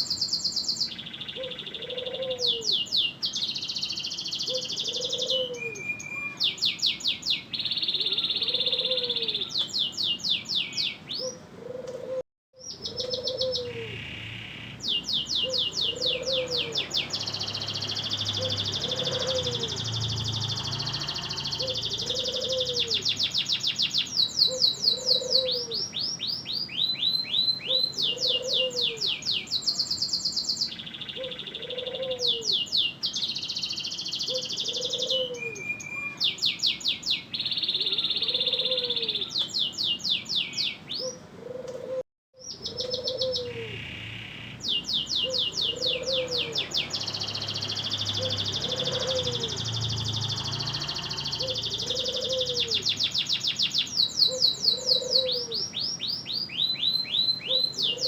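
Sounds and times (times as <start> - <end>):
canary singing trills: 0.0 - 11.8, 12.6 - 41.3, 42.4 - 58.0
soft lower bird call: 0.0 - 25.9, 42.4 - 58.0.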